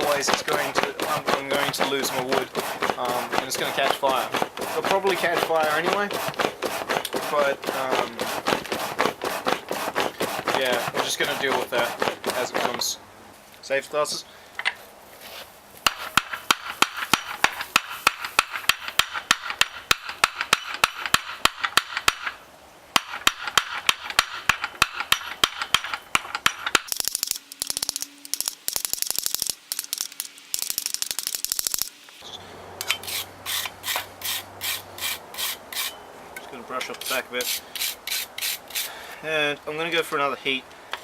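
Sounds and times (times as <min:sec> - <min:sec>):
brush scrubbing metal: 0:00.0 - 0:12.9, 0:36.8 - 0:39.0.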